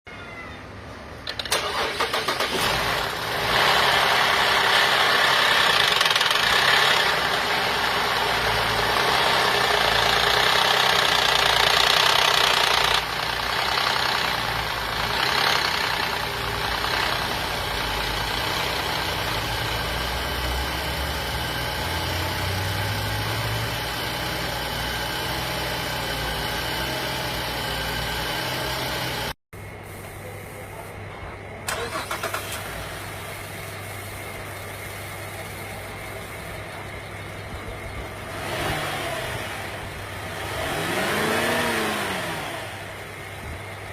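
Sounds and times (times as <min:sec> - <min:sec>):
car engine idling: 0:01.3 - 0:29.3.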